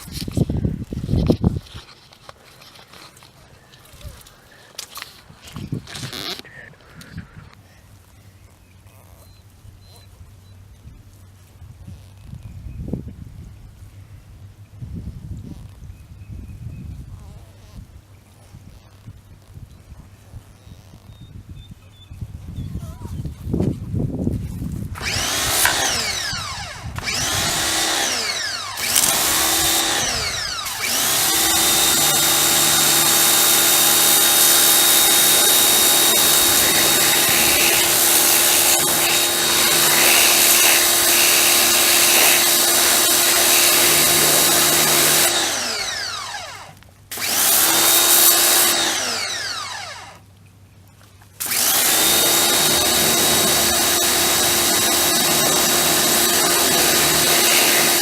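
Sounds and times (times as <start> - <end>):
electric motor humming and whining: 25.0 - 50.3, 51.4 - 58.0.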